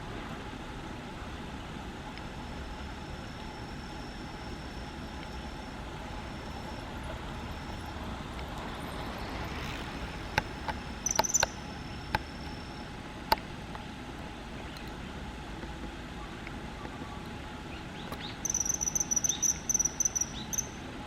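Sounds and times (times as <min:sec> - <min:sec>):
outdoor background hum: 0:00.0 - 0:21.0
high chirps: 0:03.0 - 0:12.8, 0:18.0 - 0:20.9
sharp clicks: 0:10.2 - 0:12.6.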